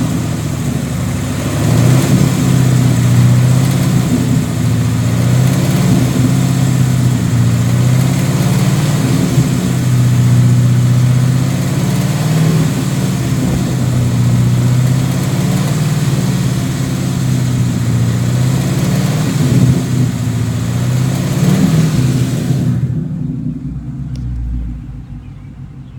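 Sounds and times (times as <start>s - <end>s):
car engine revving in neutral: 0.0s - 25.9s
engine clicking tick: 24.0s - 24.6s.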